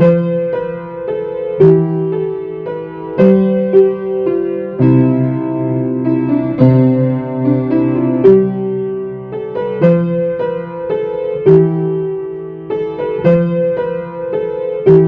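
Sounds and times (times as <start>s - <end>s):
solo piano playing a carol: 0.0s - 15.0s.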